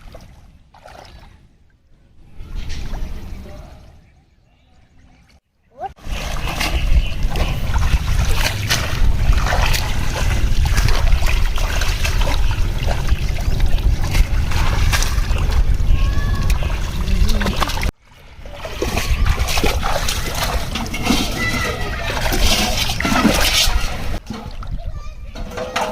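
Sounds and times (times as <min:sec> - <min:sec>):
water splashing and sloshing: 0:00.0 - 0:25.9
steady low rumble: 0:06.2 - 0:17.9.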